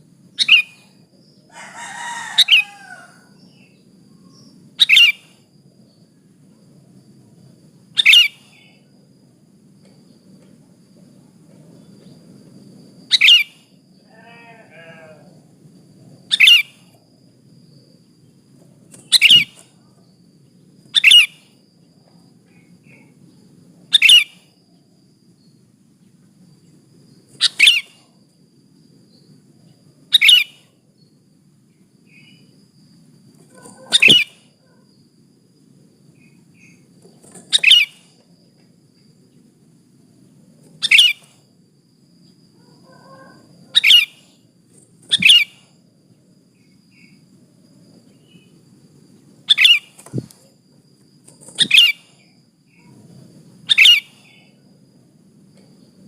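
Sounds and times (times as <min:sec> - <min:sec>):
fainter lower bird call: 0:00.4 - 0:05.4, 0:08.0 - 0:08.9, 0:13.0 - 0:15.4, 0:16.3 - 0:17.0, 0:18.9 - 0:20.0, 0:20.9 - 0:21.6, 0:22.5 - 0:24.6, 0:27.3 - 0:28.2, 0:30.1 - 0:31.2, 0:33.5 - 0:34.8, 0:36.2 - 0:38.2, 0:40.8 - 0:41.4, 0:42.2 - 0:44.4, 0:45.0 - 0:45.8, 0:49.5 - 0:50.5, 0:51.4 - 0:53.0, 0:53.7 - 0:54.6.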